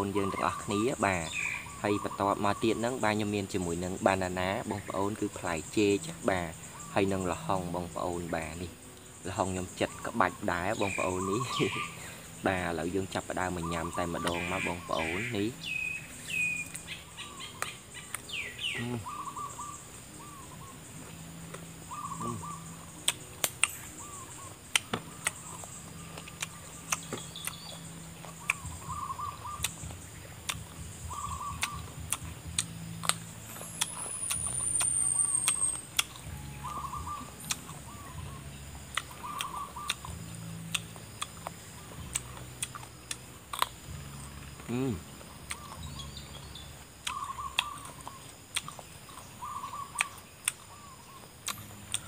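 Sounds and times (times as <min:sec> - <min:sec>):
bird calling: 0:00.0 - 0:52.0
chewing with mouth clicks: 0:23.0 - 0:23.8, 0:24.7 - 0:28.7, 0:29.5 - 0:30.8, 0:31.6 - 0:36.3, 0:37.4 - 0:37.8, 0:38.9 - 0:43.8, 0:45.5 - 0:45.8, 0:47.0 - 0:49.2, 0:51.4 - 0:52.0.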